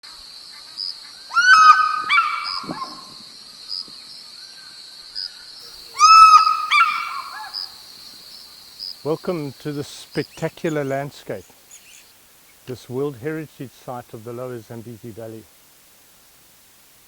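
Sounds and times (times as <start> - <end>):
loud bird calls: 0.6 - 3.2, 5.4 - 12.6
pulsing high insect drone: 5.6 - 12.2.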